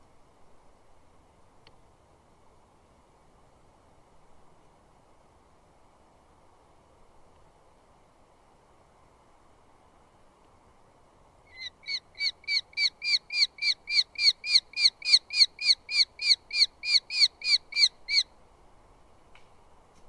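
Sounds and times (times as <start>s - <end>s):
bird sharp kew calls: 11.5s - 18.3s.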